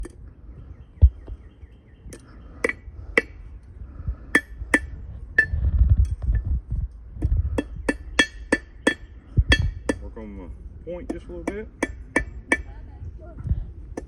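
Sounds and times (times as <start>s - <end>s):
low rumble: 0.0s - 14.0s
hammer striking iron on anvil: 7.6s - 10.0s, 11.1s - 12.7s.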